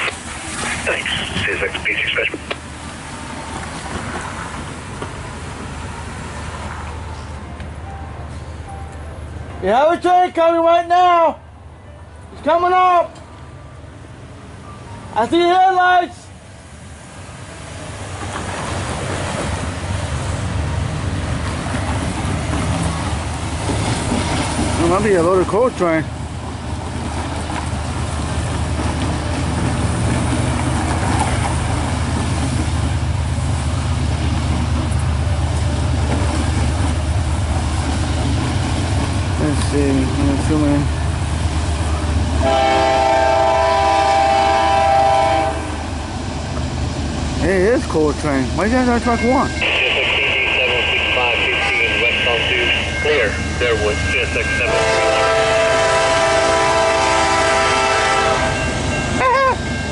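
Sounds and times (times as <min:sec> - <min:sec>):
diesel locomotives rumbling: 0:00.0 - 0:59.9
locomotive air horn blast: 0:42.4 - 0:45.9, 0:49.6 - 0:58.6.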